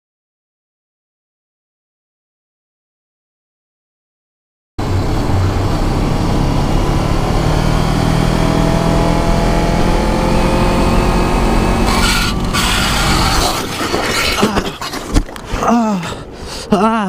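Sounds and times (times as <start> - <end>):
motorcycle engine at highway speed: 4.8 - 13.7
wind noise: 4.8 - 16.7
harsh noisy burst: 11.7 - 15.0.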